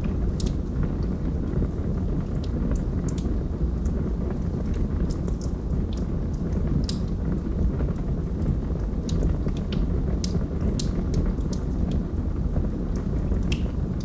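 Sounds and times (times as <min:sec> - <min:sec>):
fire crackles and pops: 0:00.0 - 0:14.0
low roar of flame: 0:00.0 - 0:14.0.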